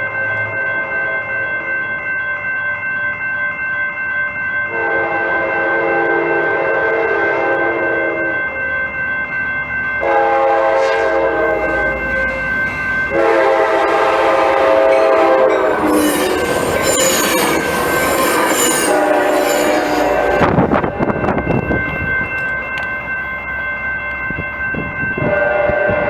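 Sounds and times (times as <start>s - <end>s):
train horn blasts: 4.7s - 8.4s, 10.0s - 21.8s, 25.2s - 26.0s
wheel squeal on rails: 14.0s - 21.6s.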